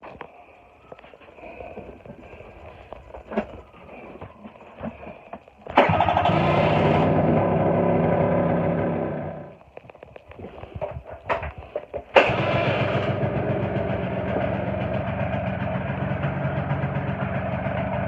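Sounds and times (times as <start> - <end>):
scooter engine running: 5.7 - 9.6, 12.1 - 18.0.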